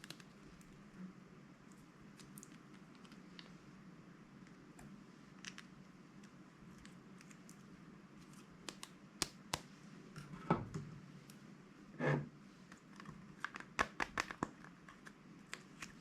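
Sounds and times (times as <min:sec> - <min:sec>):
slime squishes: 0:01.6 - 0:09.7.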